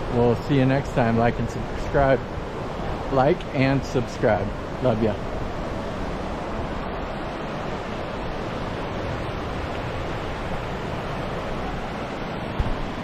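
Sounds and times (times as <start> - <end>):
wind noise on microphone: 1.0 - 13.0.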